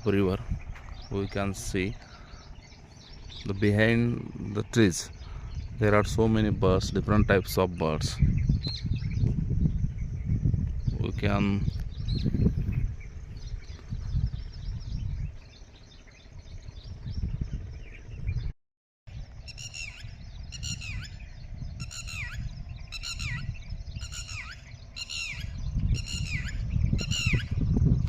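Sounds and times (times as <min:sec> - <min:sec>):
low rumble: 0:00.0 - 0:18.5
bird calling downward notes: 0:19.4 - 0:27.6.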